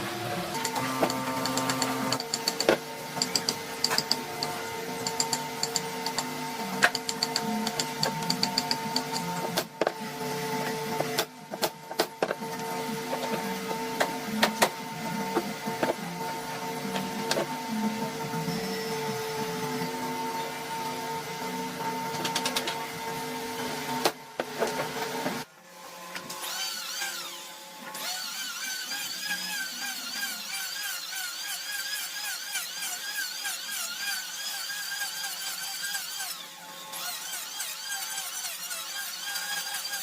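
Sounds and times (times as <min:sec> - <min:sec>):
electric power tool whining: 0:00.0 - 0:09.2, 0:25.9 - 0:40.0
tool with high wavering pitch: 0:00.0 - 0:10.9, 0:16.0 - 0:21.8, 0:26.4 - 0:40.0.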